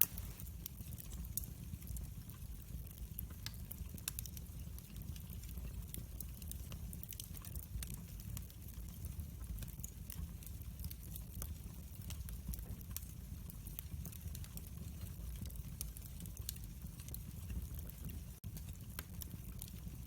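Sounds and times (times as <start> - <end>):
fire crackling and popping: 0.0 - 20.0
fire rumbling: 0.0 - 20.0.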